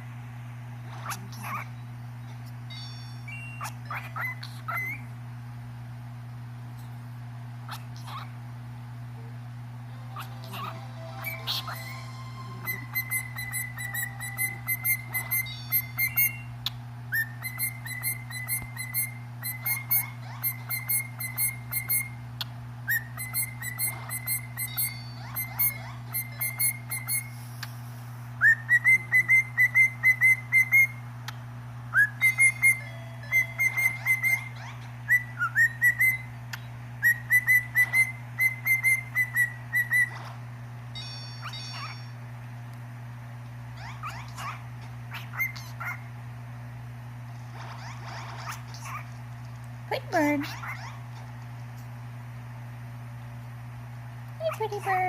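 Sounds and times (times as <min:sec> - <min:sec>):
steady low hum: 0:00.0 - 0:55.0
bird whistling a song: 0:02.7 - 0:05.1, 0:10.1 - 0:27.4, 0:28.4 - 0:31.0, 0:31.9 - 0:40.2, 0:41.2 - 0:42.2, 0:43.8 - 0:46.0.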